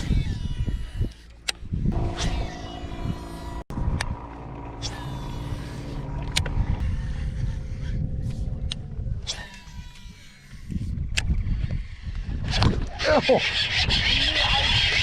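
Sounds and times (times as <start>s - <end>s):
boat motor humming: 1.2s - 10.8s
low rumble: 1.7s - 12.3s.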